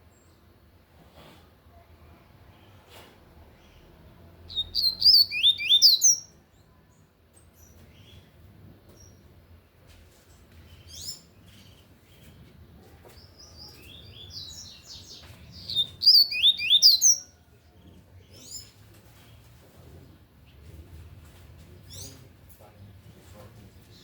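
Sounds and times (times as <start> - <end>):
bird singing high notes: 4.5 - 6.3, 15.7 - 17.3.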